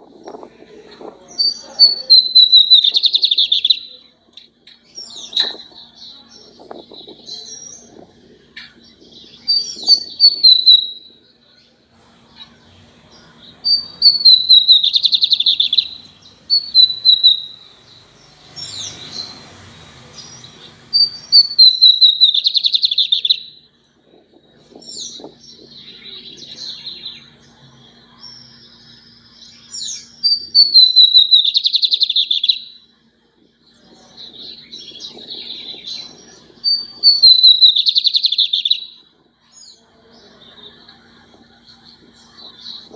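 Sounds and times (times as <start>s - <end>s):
bird singing whistles and trill: 1.3s - 4.1s, 5.0s - 11.4s, 13.2s - 19.4s, 20.2s - 23.7s, 24.6s - 33.0s, 34.0s - 42.9s.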